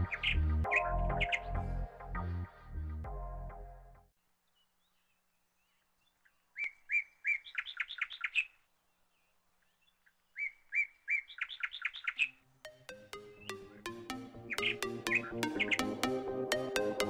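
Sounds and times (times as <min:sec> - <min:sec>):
background music: 0:00.0 - 0:04.1, 0:12.6 - 0:17.0
songbird singing: 0:04.4 - 0:16.0.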